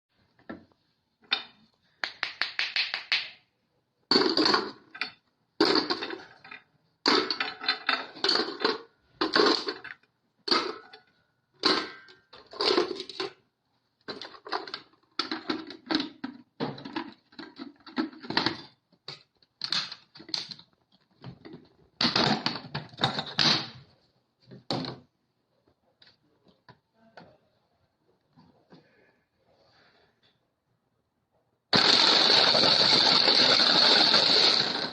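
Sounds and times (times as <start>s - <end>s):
meat grinder crunching brick: 31.7s - 34.9s.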